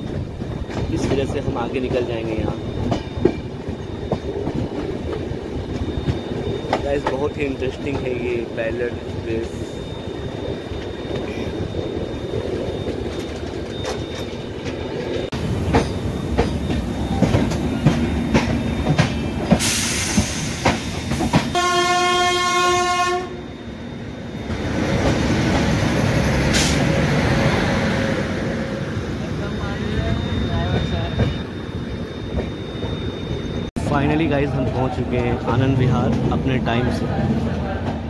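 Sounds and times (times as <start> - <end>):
train wheels clickety-clack: 0.0 - 9.8, 12.5 - 22.2, 24.5 - 27.2, 33.9 - 38.0
electric locomotive passing: 0.0 - 38.0
locomotive horn blast: 21.5 - 23.5.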